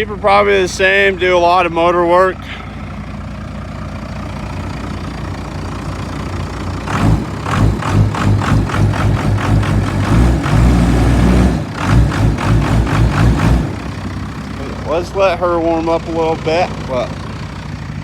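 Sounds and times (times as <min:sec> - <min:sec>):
diesel engine idling rough: 0:00.0 - 0:18.0.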